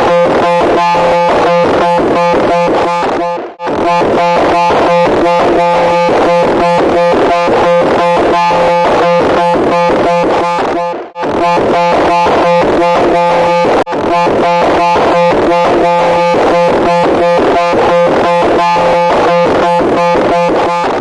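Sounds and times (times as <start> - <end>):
harsh electronic buzzing pulses: 0.0 - 21.0.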